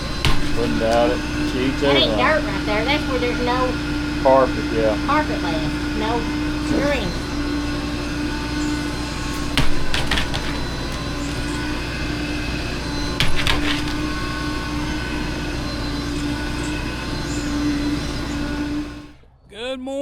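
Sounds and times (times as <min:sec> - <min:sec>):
sharp knocks: 0:00.0 - 0:01.3, 0:09.3 - 0:11.6, 0:13.1 - 0:14.3
steady machine hum: 0:00.0 - 0:20.0.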